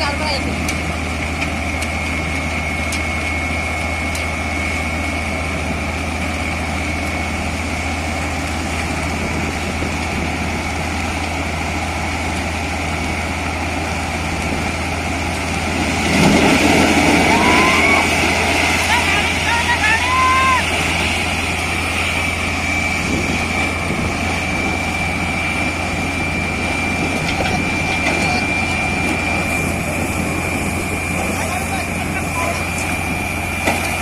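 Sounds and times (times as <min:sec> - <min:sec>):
drilling rig engine humming: 0:00.0 - 0:34.0
rushing noise: 0:15.5 - 0:33.6.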